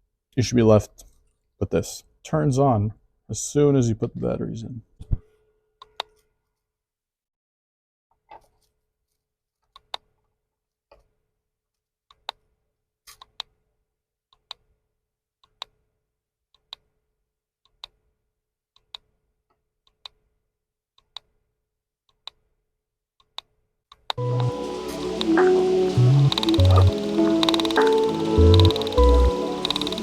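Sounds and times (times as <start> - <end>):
drip-like electronic clicks: 24.2 - 30.0
faint steady electronic tone: 24.2 - 30.0.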